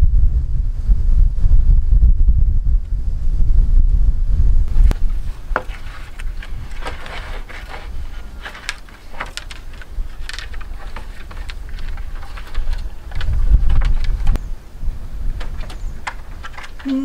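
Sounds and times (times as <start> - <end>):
wind rumble on microphone: 0.0 - 17.0
bamboo clicks and knocks: 4.7 - 14.4.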